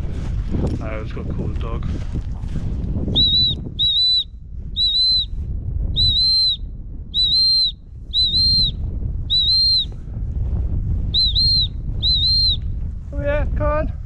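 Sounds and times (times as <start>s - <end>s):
wind rumbling on microphone: 0.0s - 14.0s
dog whistle blasts: 3.1s - 5.3s, 6.0s - 6.6s, 7.2s - 9.9s, 11.2s - 12.6s.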